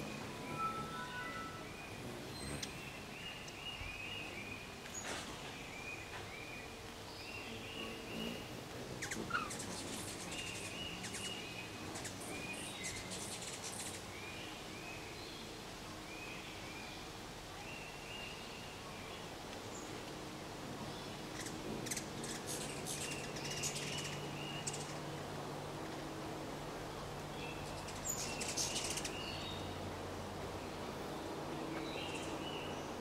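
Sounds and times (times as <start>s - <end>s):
bird chirping: 0.0s - 5.1s, 5.7s - 15.0s, 21.3s - 25.0s, 27.4s - 29.8s, 31.7s - 33.0s.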